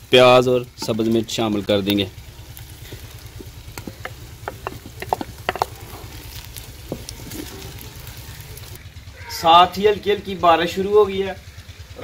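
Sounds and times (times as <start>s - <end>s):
vegetables frying in oil: 0.0s - 9.4s
low hum: 1.6s - 9.1s
wooden spoon scraping pot: 2.3s - 8.8s
sharp clicks and knocks: 2.8s - 7.8s.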